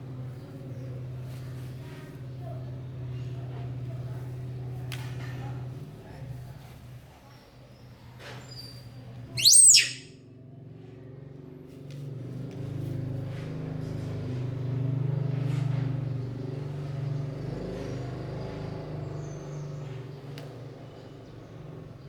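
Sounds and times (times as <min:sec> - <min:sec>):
small animal squealing: 0:09.4 - 0:10.1.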